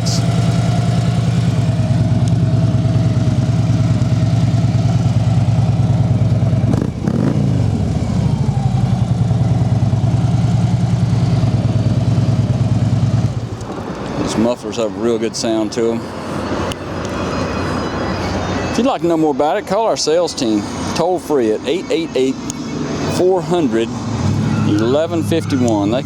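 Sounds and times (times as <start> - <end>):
motorcycle engine revving: 0.0 - 17.3, 20.4 - 26.0
motorcycle engine idling: 0.0 - 18.8.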